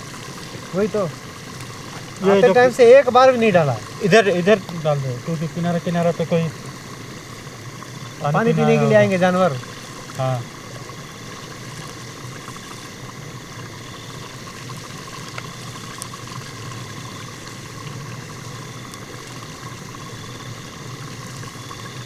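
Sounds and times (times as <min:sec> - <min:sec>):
water rushing: 0:00.0 - 0:22.0
faint clicks: 0:04.6 - 0:04.9.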